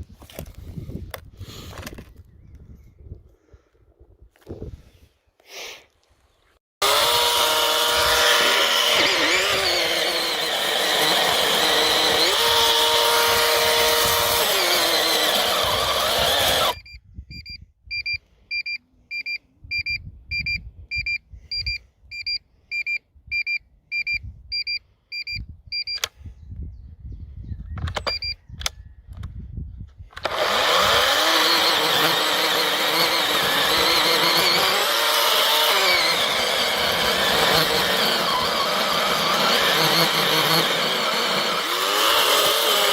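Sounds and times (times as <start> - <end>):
cordless chainsaw motor whine: 6.8 - 16.8, 30.2 - 42.9.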